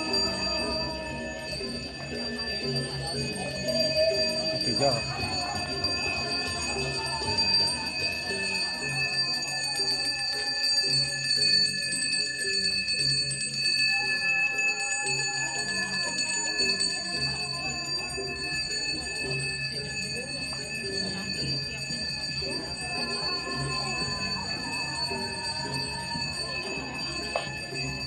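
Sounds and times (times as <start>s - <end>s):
hand bell ringing: 0.0s - 28.0s.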